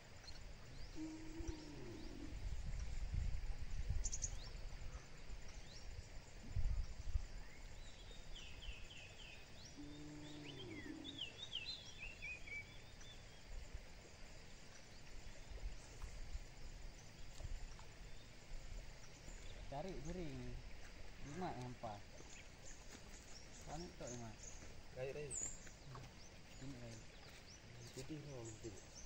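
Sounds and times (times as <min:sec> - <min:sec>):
wild birds calling: 0:00.0 - 0:02.6, 0:07.4 - 0:13.4.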